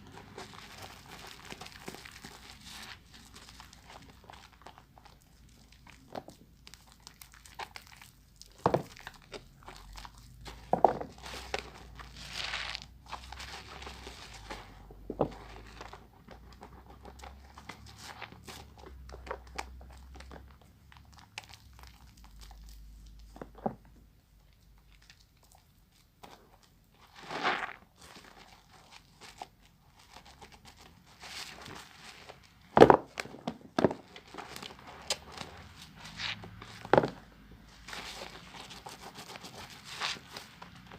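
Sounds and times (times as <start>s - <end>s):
soap lather squishing: 0.0s - 10.5s.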